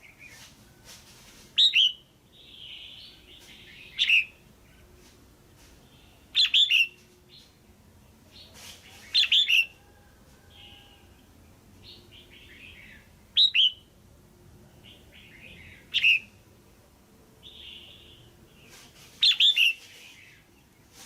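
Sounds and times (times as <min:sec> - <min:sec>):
bird sharp chirping: 0:05.9 - 0:07.5, 0:08.4 - 0:09.7, 0:11.8 - 0:13.9, 0:14.9 - 0:16.4, 0:17.4 - 0:20.5.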